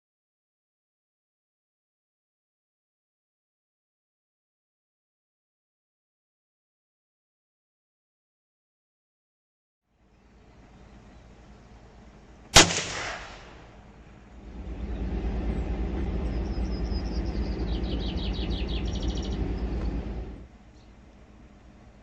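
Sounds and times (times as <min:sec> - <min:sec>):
low rumbling noise: 0:09.9 - 0:22.0
rifle shot with echo: 0:12.5 - 0:13.9.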